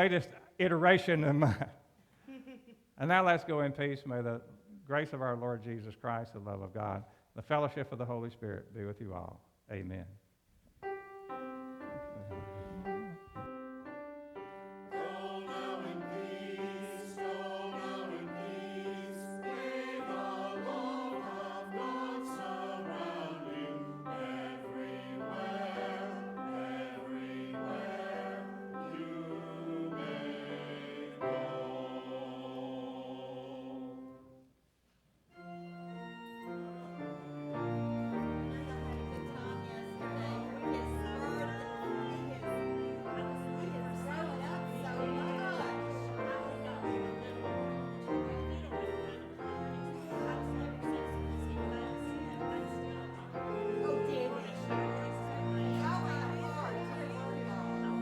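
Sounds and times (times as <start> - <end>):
keyboard accompaniment: 10.8 - 34.4, 35.3 - 58.0
choir singing: 11.3 - 13.6, 14.3 - 34.5, 36.0 - 58.0.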